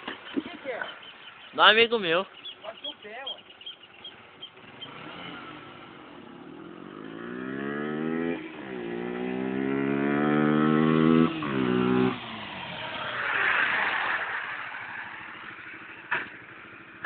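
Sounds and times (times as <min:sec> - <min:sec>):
motorcycle engine accelerating: 0:03.5 - 0:17.0.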